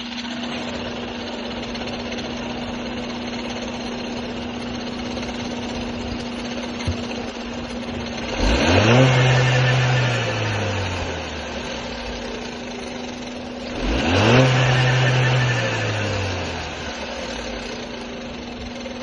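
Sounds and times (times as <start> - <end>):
car engine running: 0.0 - 19.0
engine knock: 0.0 - 19.0.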